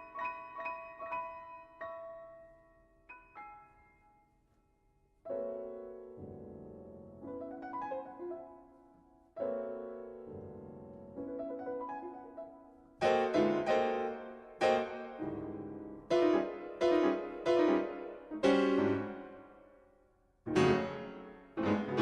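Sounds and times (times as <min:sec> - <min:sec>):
solo piano music: 0:00.0 - 0:04.5, 0:05.1 - 0:22.0.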